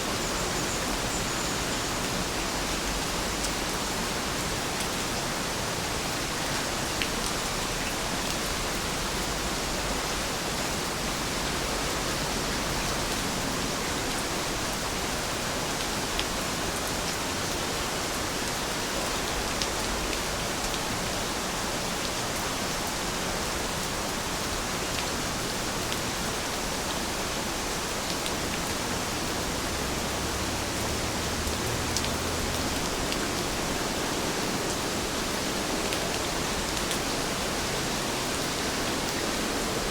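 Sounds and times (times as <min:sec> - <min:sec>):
steady rain hissing: 0:00.0 - 0:39.9.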